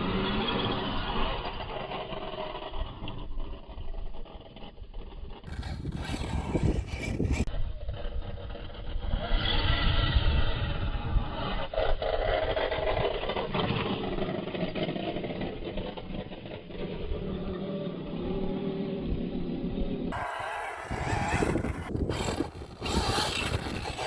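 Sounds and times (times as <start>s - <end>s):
toy truck motor whine: 5.4s - 7.5s, 20.1s - 24.0s
tyres and chassis rumble: 5.5s - 7.5s, 20.1s - 24.0s.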